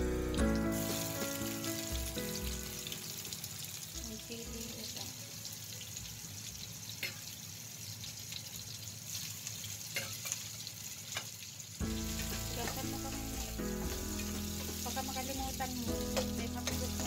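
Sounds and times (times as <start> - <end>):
music with held notes: 0.0 - 5.1, 11.8 - 17.0
food sizzling in a wok: 0.0 - 17.0.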